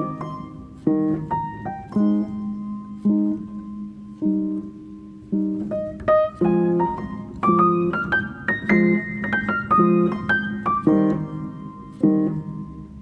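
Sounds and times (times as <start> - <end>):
low piano chords: 0.0 - 13.0
piano melody: 0.0 - 13.0.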